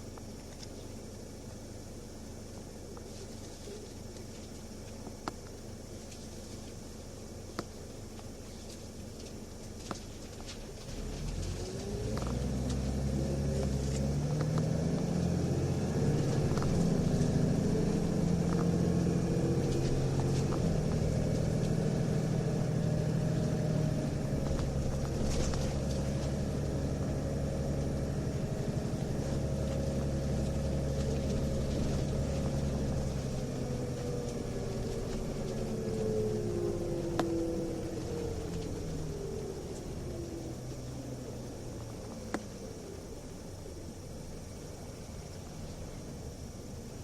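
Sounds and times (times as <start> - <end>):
bus diesel engine pulling: 0.0 - 47.0.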